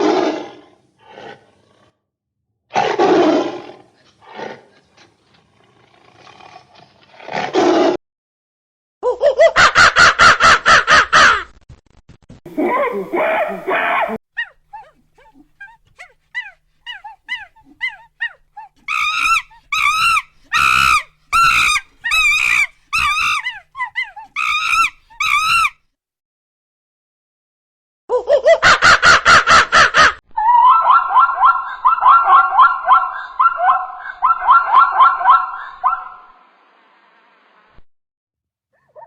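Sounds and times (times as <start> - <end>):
loud high yelping calls: 12.6 - 25.8, 30.4 - 36.2
fast rattling pulsed call: 18.9 - 25.7.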